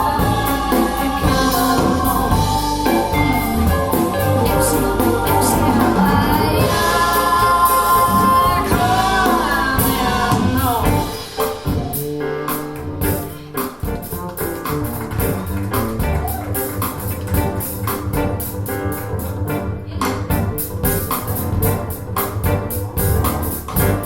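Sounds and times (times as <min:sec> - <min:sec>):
person singing: 0:00.0 - 0:14.0
guitar bass and drums band: 0:00.0 - 0:24.0.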